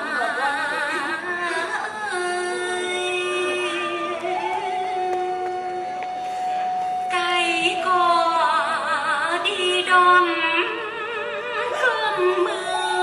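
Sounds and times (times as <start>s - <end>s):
music: 0.0s - 13.0s
person singing with vibrato: 7.0s - 13.0s.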